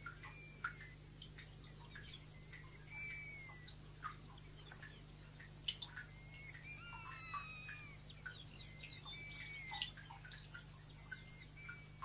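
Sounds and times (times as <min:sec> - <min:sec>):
wild birds chirping: 0:00.0 - 0:12.0
bird whistled notes: 0:00.2 - 0:01.0, 0:02.2 - 0:03.8, 0:06.1 - 0:10.0.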